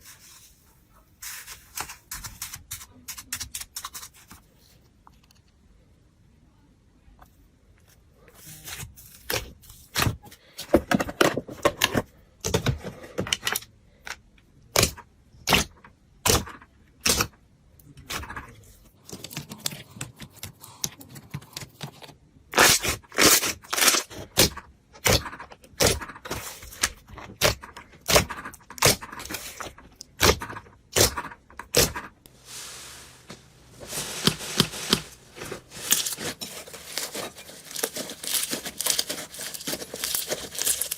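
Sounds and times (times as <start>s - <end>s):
slime rustling stretch: 32.3s - 40.9s.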